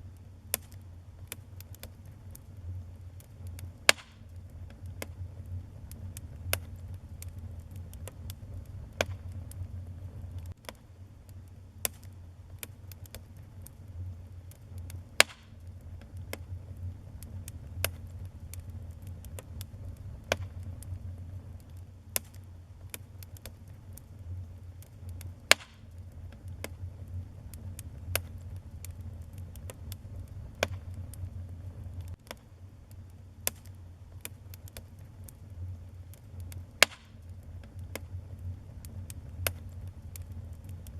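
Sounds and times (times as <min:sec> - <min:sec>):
low fire rumble: 0:00.0 - 0:40.9
wood fire crackling and popping: 0:00.0 - 0:40.9.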